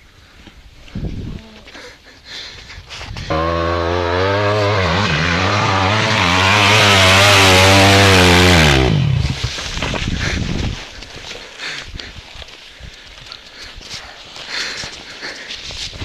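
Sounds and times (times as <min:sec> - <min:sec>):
dirt bike engine at full throttle: 0:03.2 - 0:10.6.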